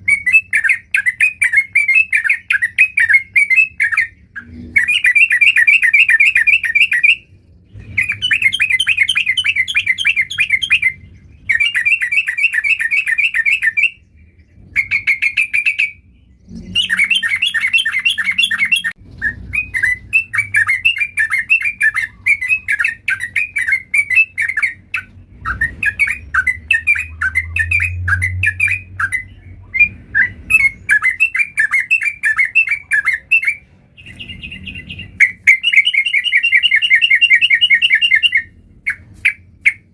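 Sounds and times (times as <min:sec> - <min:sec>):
bulbul singing chattering phrases: 0:08.0 - 0:39.0.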